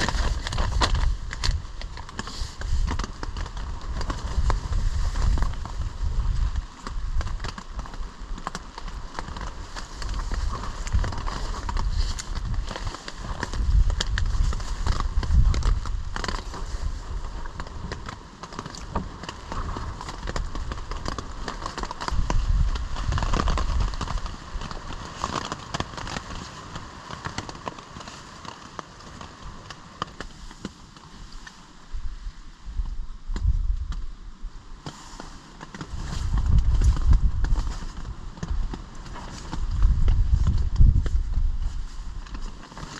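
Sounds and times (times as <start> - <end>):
gusty wind buffeting microphone: 0.0 - 18.1, 18.8 - 25.2, 31.8 - 34.8, 35.8 - 42.7.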